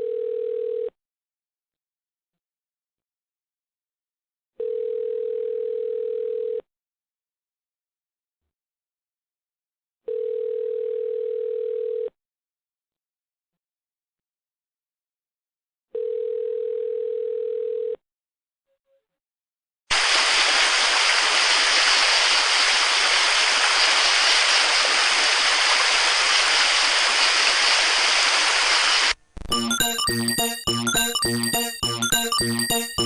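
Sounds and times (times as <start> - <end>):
white noise hiss: 19.9 - 29.2
electronic beep tone: 29.5 - 33.0.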